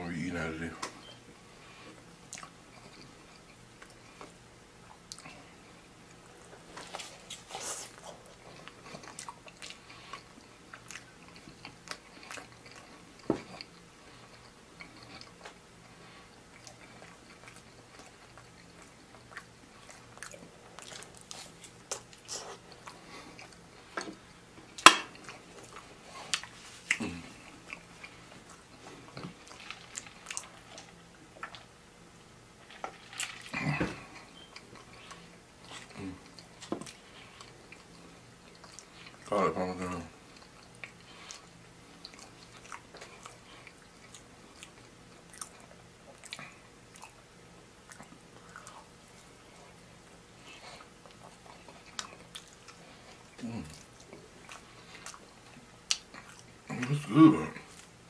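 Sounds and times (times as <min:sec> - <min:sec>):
person chewing fries: 0:01.8 - 0:58.0.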